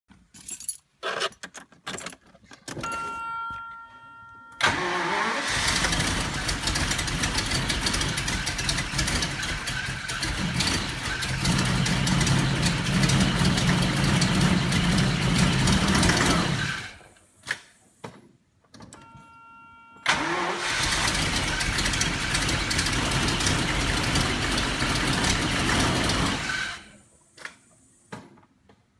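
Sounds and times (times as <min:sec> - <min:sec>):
car engine misfiring: 0:04.6 - 0:17.0, 0:20.1 - 0:26.9.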